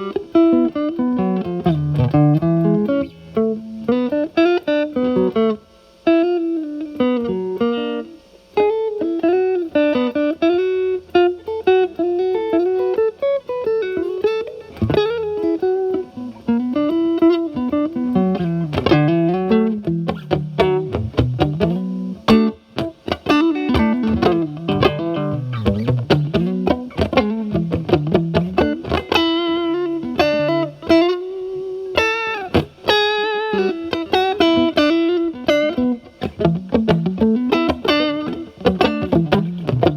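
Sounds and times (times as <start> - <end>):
electric guitar chords: 0.0 - 39.9
overdriven electric guitar lead: 0.0 - 39.9.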